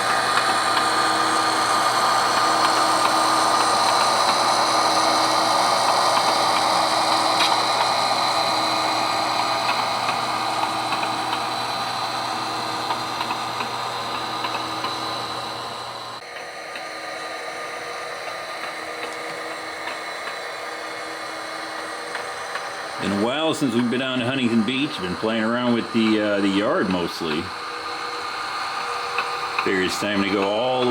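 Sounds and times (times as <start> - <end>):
model train motor hum: 0.0 - 30.9
wheels on track: 0.0 - 30.9.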